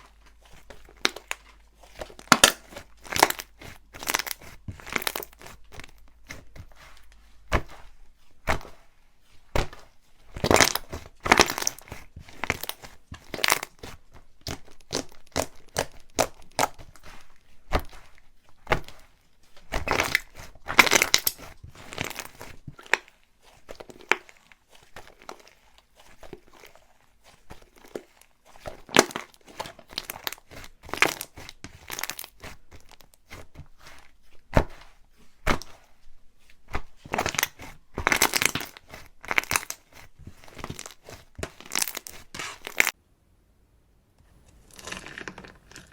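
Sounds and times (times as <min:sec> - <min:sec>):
slime crackling and popping: 0:00.1 - 0:06.8, 0:09.5 - 0:26.9, 0:27.6 - 0:33.4, 0:36.7 - 0:43.0.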